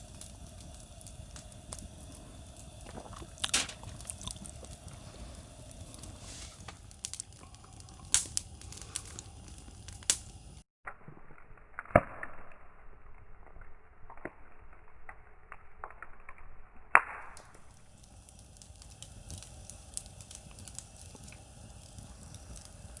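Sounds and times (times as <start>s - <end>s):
sharp pops from burning wood: 0.0s - 10.6s, 15.5s - 23.0s
campfire crackling: 0.0s - 23.0s.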